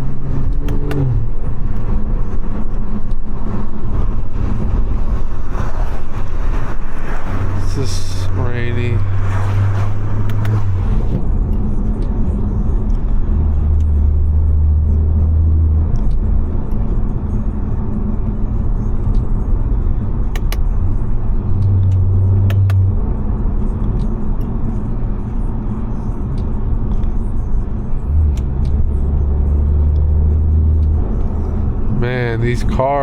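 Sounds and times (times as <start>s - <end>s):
car engine drone: 0.0s - 33.0s
tyres on wet road: 4.6s - 12.1s.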